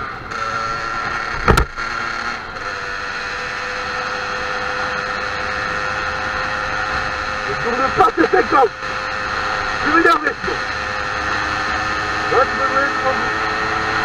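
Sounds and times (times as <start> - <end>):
motorcycle engine running: 0.0 - 14.0
sharp knock: 1.4 - 1.8.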